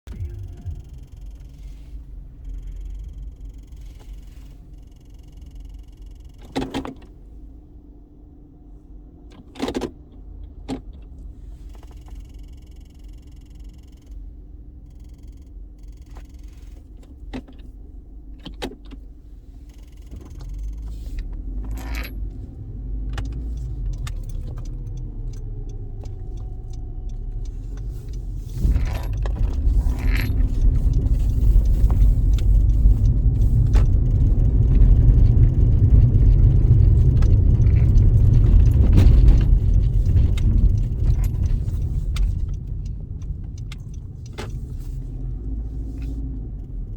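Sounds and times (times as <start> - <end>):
car engine humming: 0.0 - 46.9
sharp ticking clicks: 29.1 - 44.6.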